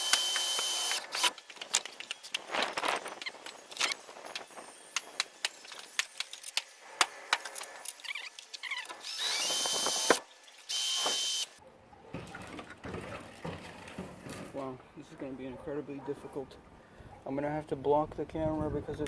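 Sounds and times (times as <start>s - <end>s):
power drill running: 0.0s - 1.3s, 9.0s - 11.6s.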